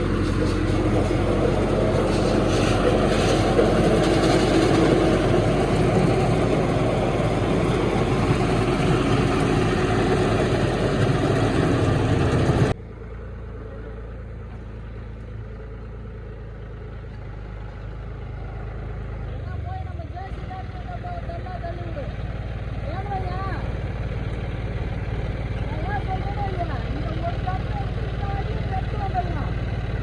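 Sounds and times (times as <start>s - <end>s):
harvester chopping crop: 0.0s - 12.8s
engine hum: 0.0s - 30.0s.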